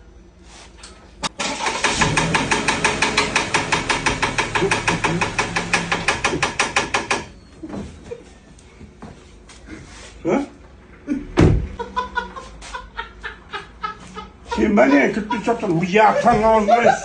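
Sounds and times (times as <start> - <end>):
rapid engine knocking: 1.8 - 7.3
low engine hum: 10.8 - 14.3.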